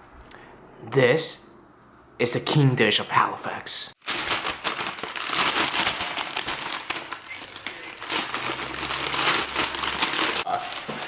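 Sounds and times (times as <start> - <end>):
wrapping paper crinkling: 4.0 - 11.0.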